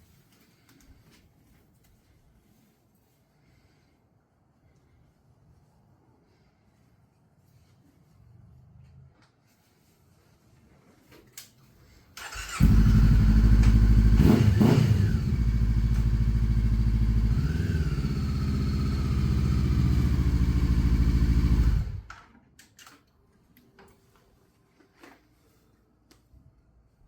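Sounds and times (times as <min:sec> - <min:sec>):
motorcycle engine running: 0:12.5 - 0:22.1.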